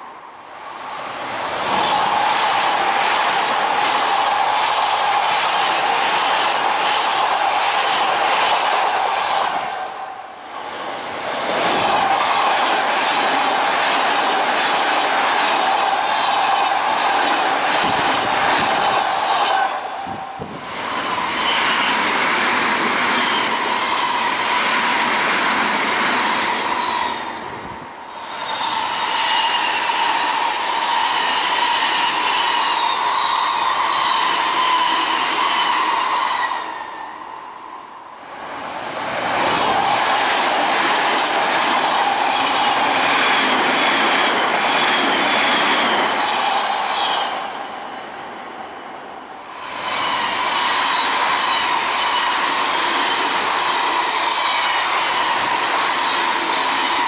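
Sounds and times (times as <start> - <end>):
electric trains passing: 0.0 - 57.0
high-pitched train whine: 0.0 - 57.0.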